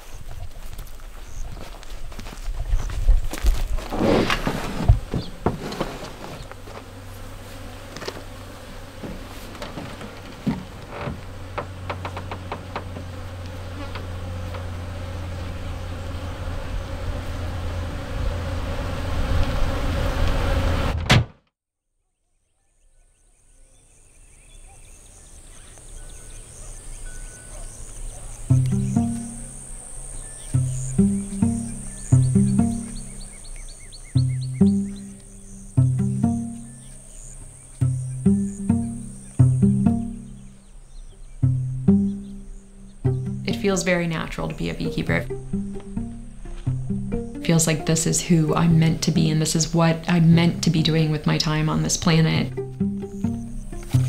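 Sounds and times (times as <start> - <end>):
honeybees buzzing: 0.0 - 20.9, 25.1 - 54.0
high insect chirring: 6.4 - 18.6, 25.3 - 54.0
knocks: 9.0 - 13.2.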